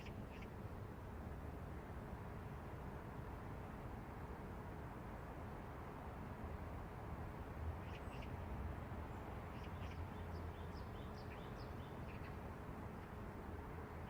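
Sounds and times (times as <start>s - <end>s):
city traffic rumble: 0.0s - 14.0s
small birds chirping: 9.5s - 12.4s.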